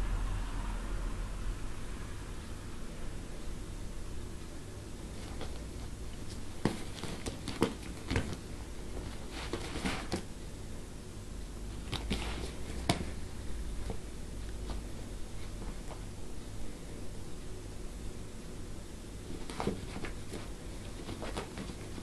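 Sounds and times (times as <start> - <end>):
low steady hum: 0.0 - 22.0
cat scratching a handbag: 5.3 - 10.2, 19.4 - 22.0.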